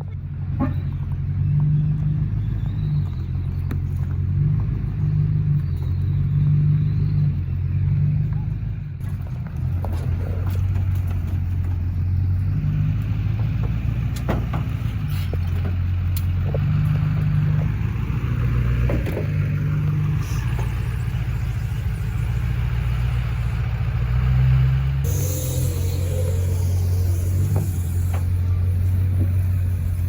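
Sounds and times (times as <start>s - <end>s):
vehicle engine droning: 0.0s - 30.0s
knocks and clatters: 9.0s - 12.0s, 13.3s - 19.7s.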